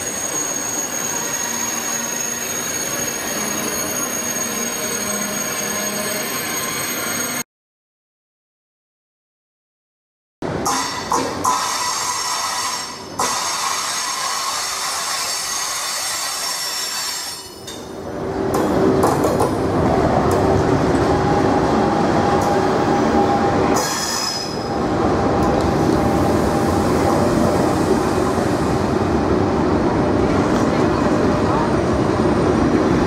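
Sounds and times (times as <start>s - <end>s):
train wheels squealing on rails: 0.0s - 7.4s, 10.7s - 18.0s, 21.1s - 24.8s.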